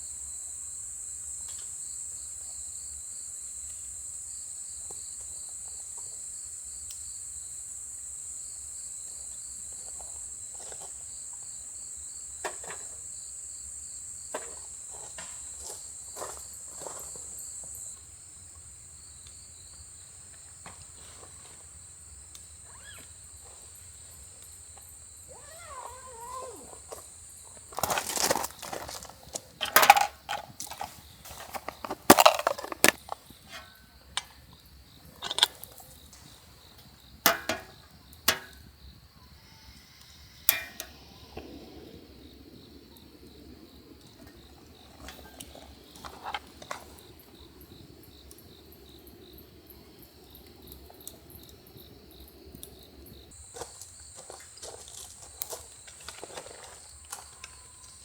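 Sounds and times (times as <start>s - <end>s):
crickets chirring: 0.0s - 58.0s
soft rustling: 25.8s - 33.8s.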